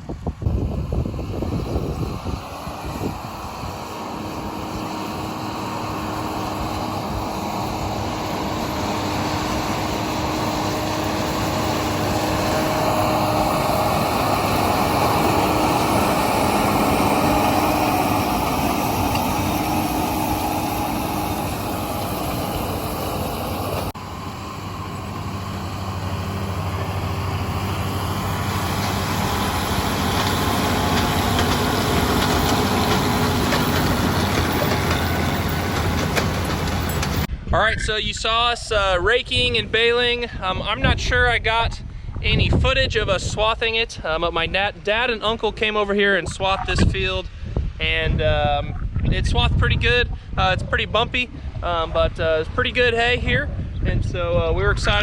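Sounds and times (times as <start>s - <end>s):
tractor engine running: 0.0s - 37.4s.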